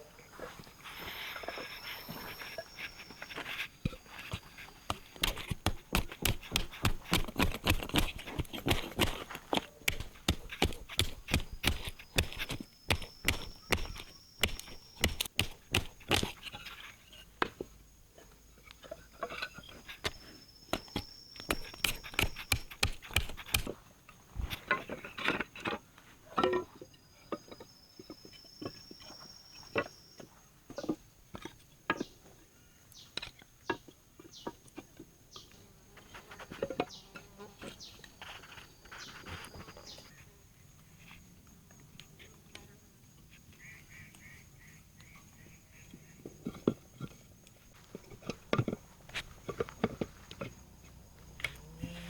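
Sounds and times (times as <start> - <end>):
sharp clicks and knocks: 3.9 - 16.7, 19.9 - 23.8
insect buzzing: 51.2 - 52.0.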